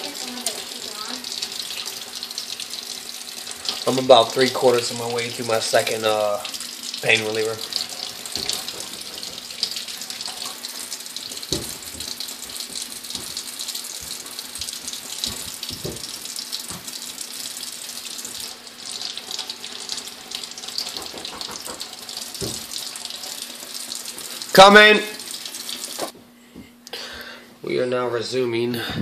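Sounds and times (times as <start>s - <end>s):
tap water running into sink: 0.0s - 26.2s
soft knocks: 20.9s - 22.7s.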